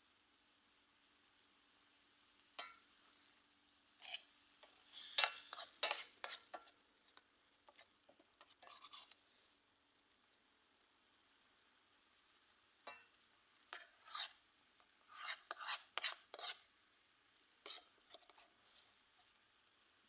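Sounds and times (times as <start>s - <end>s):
food sizzling: 0.0s - 20.0s
utensil scraping a pan: 4.0s - 9.5s, 13.7s - 14.5s, 15.1s - 16.7s, 17.6s - 19.4s.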